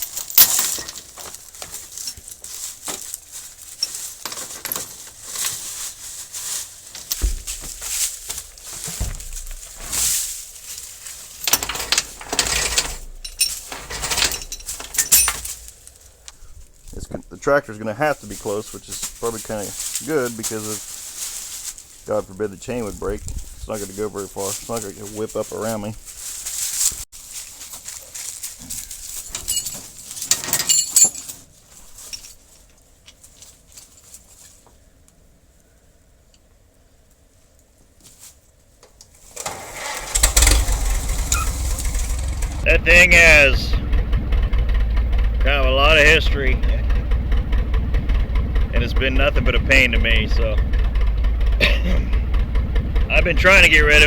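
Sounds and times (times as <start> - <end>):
chain rattling and clinking: 0.0 - 16.9, 27.9 - 34.3, 39.3 - 54.0.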